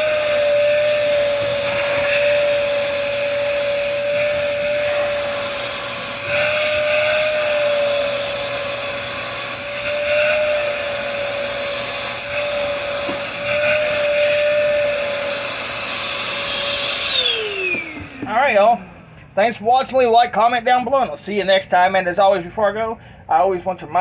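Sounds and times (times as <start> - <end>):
vacuum cleaner whine: 0.0 - 19.1.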